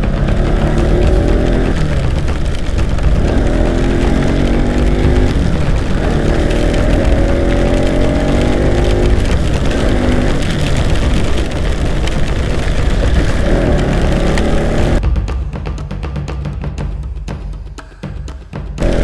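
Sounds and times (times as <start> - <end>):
motorcycle engine accelerating: 0.0 - 15.0, 18.8 - 19.0
wind noise: 0.0 - 15.0.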